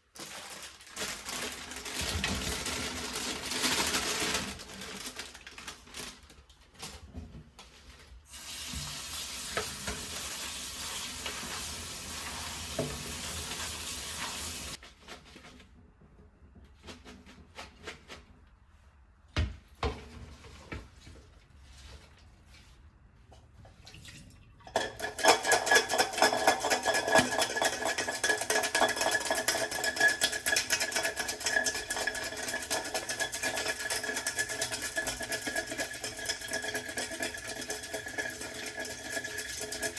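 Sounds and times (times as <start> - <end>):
whisk clicking in a bowl: 24.7 - 39.9.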